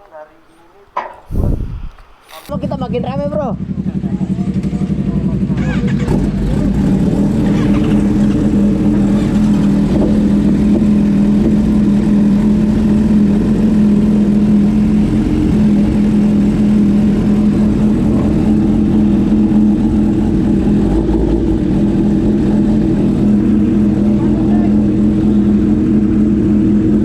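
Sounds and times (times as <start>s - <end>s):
wind and road noise: 0.0s - 2.5s, 6.7s - 24.1s
motorcycle engine running: 1.3s - 27.0s.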